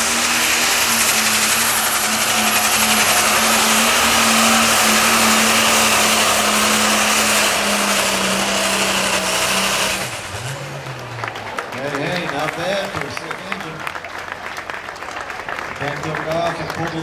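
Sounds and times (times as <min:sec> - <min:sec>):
high whine: 0:00.0 - 0:11.0
tractor engine running flat out: 0:00.0 - 0:17.0.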